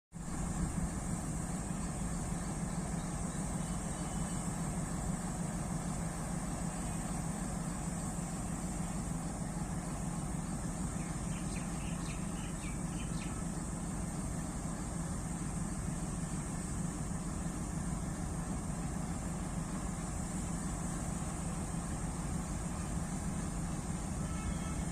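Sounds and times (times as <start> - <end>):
diesel locomotive engine running: 0.2 - 24.9
bird chirps: 10.4 - 13.5.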